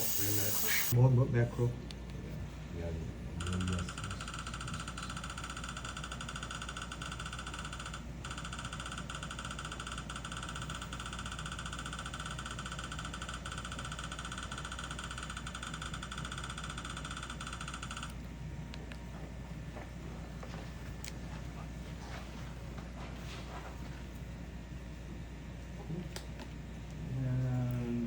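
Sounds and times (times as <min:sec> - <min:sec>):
small motor whining: 0:00.0 - 0:01.0.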